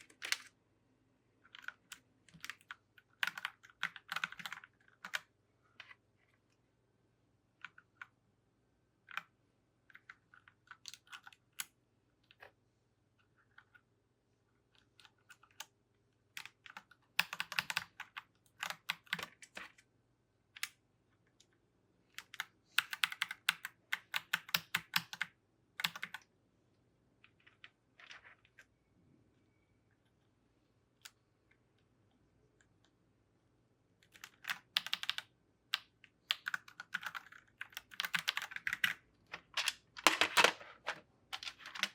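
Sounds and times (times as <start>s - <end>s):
mechanical keyboard keys clacking: 1.5s - 5.2s, 22.2s - 26.2s, 34.2s - 35.2s, 36.3s - 39.0s.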